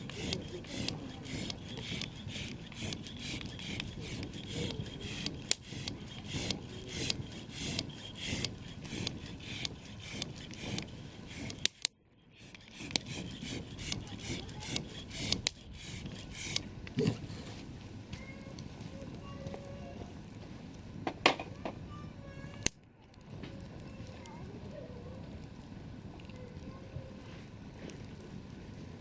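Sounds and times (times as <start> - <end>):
sharp pops: 0.0 - 16.6
rhythmic rasping strokes: 0.0 - 16.7.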